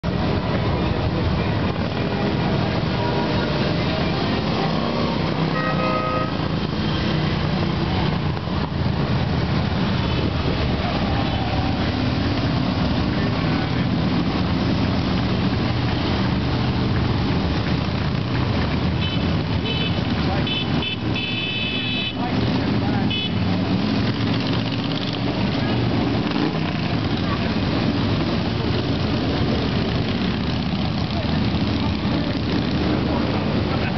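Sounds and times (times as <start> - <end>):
motorcycle engines rumbling: 0.0 - 33.9
horn toot: 5.5 - 6.4.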